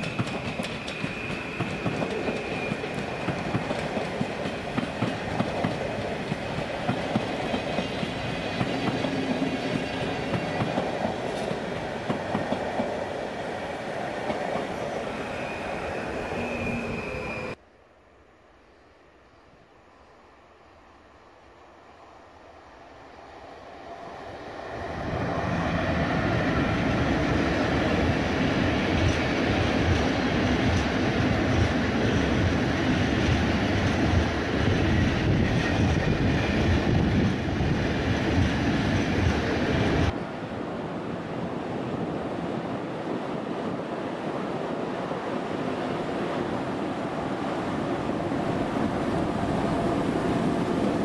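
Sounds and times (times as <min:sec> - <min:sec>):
freight train rolling past: 0:00.0 - 0:17.6, 0:21.9 - 0:51.0
approaching freight train: 0:00.0 - 0:51.0.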